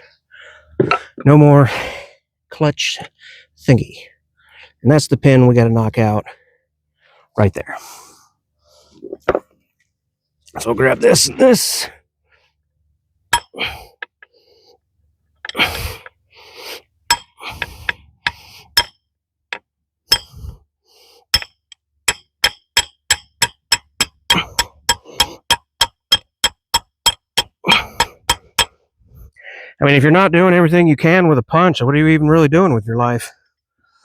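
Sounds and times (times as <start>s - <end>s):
hammer tapping metal punch: 17.1s - 17.4s, 18.2s - 20.4s, 21.3s - 28.8s.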